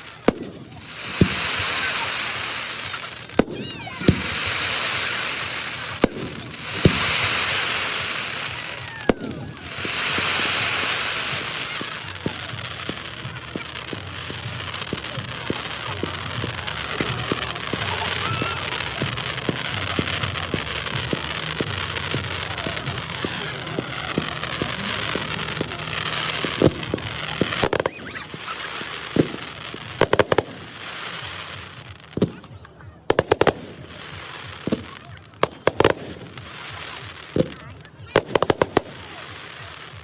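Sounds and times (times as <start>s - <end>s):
crackling hiss of falling effects: 0.0s - 32.3s
rapid small pops and crackles: 11.4s - 40.0s
firework shells bursting: 33.1s - 39.0s.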